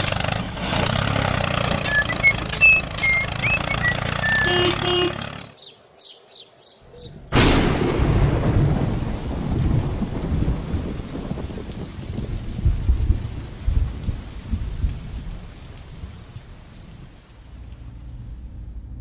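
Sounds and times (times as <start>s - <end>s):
small engine humming: 0.0s - 5.5s
short chirping whistles: 1.9s - 5.0s
thunderclap: 7.3s - 17.2s
steady rain: 7.4s - 19.0s.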